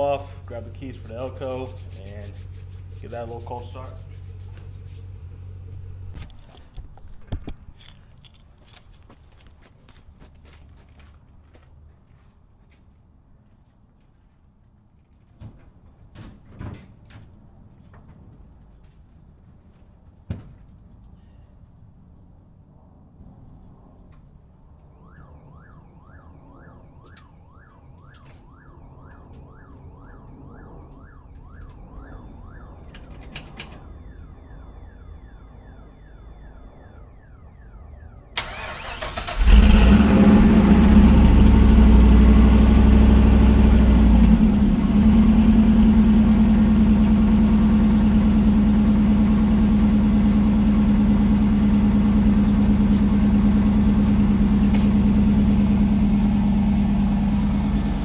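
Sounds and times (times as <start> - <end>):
car engine starting and idling: 38.3 - 58.0.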